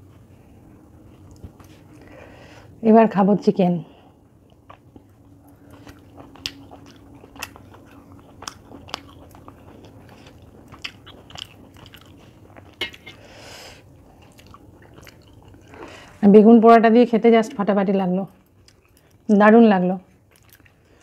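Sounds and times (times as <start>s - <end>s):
person chewing with wet clicks: 1.0s - 2.0s, 4.4s - 13.2s, 13.9s - 15.9s, 18.3s - 19.3s, 20.2s - 21.0s.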